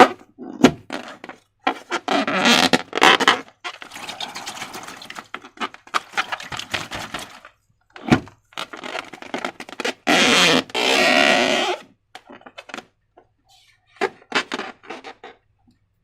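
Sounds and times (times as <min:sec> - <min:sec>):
slime squelching: 0:03.6 - 0:07.5.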